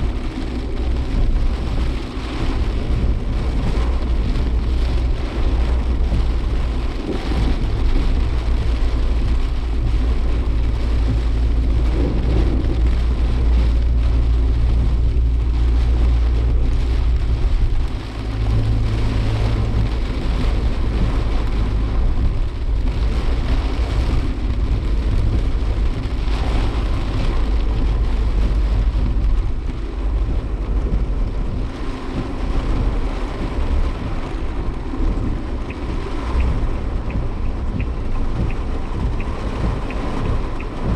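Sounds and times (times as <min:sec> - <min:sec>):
car engine and road rumble: 0:00.0 - 0:40.9
rain and wind hissing: 0:00.0 - 0:40.9.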